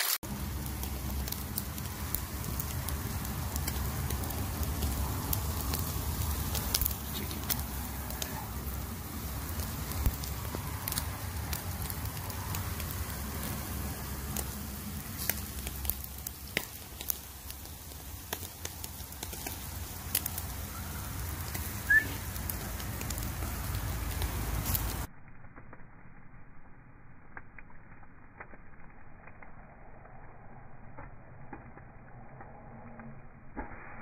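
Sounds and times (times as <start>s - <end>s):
sharp pops: 0.0s - 25.1s
charcoal fire crackling: 0.0s - 34.0s
low rumble: 0.2s - 34.0s.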